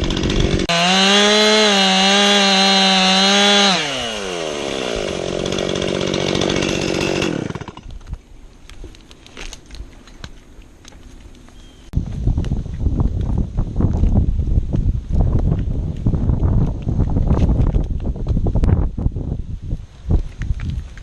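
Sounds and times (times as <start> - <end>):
chainsaw engine: 0.0 - 8.0.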